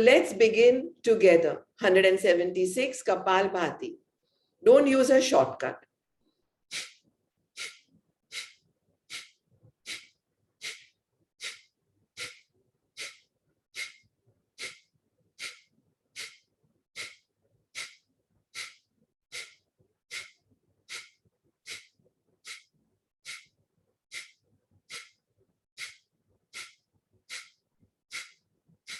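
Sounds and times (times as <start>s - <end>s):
quiet inhalations: 4.1s - 4.6s, 6.2s - 23.5s, 24.1s - 25.2s, 25.8s - 28.9s
forceful nasal exhalations: 6.7s - 23.5s, 24.1s - 25.2s, 25.8s - 28.9s.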